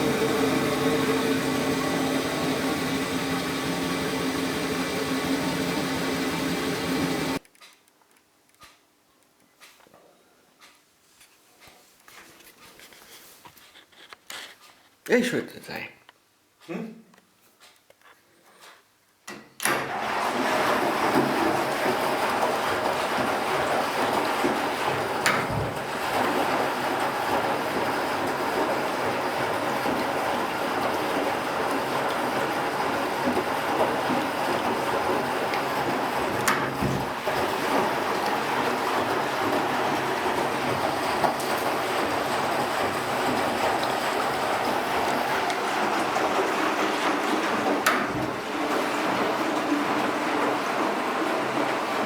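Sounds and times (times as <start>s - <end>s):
washing machine churning: 0.0s - 7.4s, 19.7s - 52.0s.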